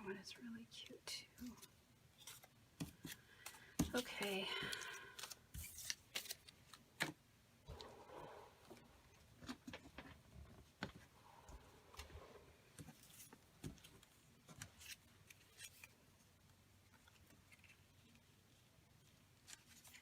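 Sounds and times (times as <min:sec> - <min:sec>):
paper handling: 0:01.4 - 0:07.2.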